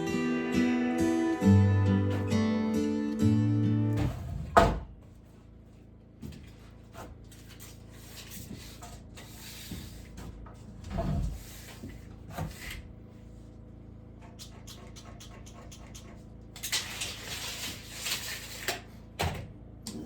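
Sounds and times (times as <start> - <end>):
acoustic guitar music: 0.0 - 4.4.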